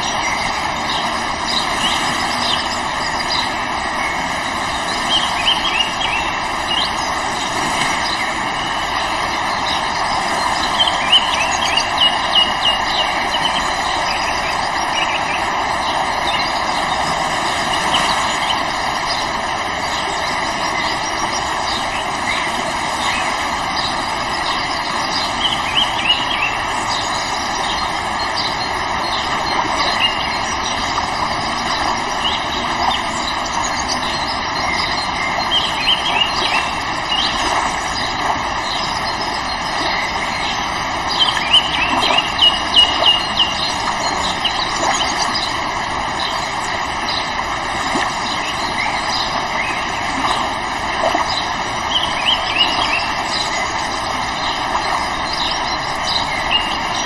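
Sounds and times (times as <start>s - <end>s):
bird chirps: 0.0s - 19.3s, 19.9s - 45.6s
river water flowing: 0.0s - 57.0s.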